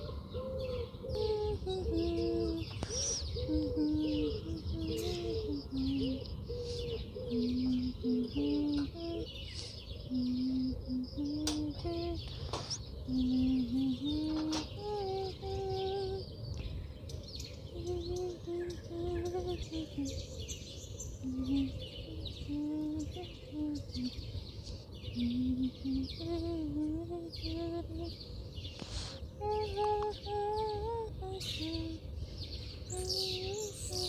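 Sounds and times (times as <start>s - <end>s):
small birds chirping and twittering: 0.0s - 34.0s
slow melody of held notes: 0.4s - 9.4s.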